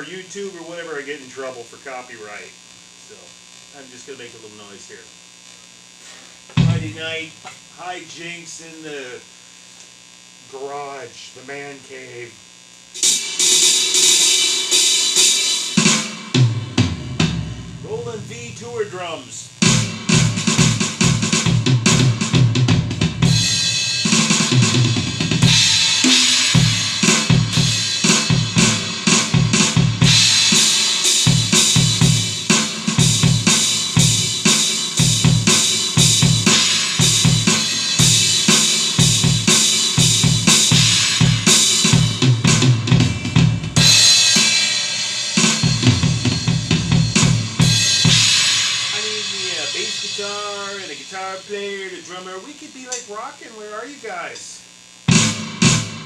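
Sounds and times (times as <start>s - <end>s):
electronic drum kit rock beat: 0.0s - 1.3s, 5.0s - 9.2s, 12.8s - 56.0s
cymbal crashes: 13.0s - 19.0s, 23.3s - 51.4s.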